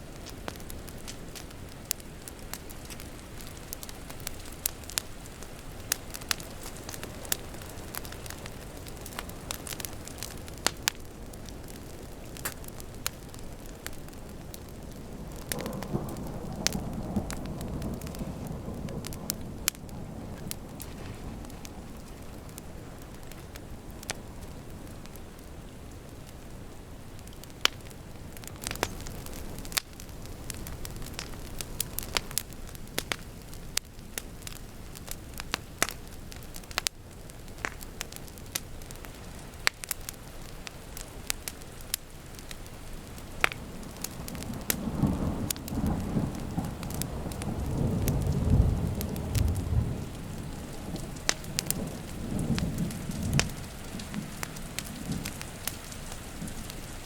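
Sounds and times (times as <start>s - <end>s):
thunder rumbling: 0.0s - 24.8s, 43.5s - 57.0s
steady rain: 0.0s - 57.0s
wood fire crackling: 0.0s - 57.0s.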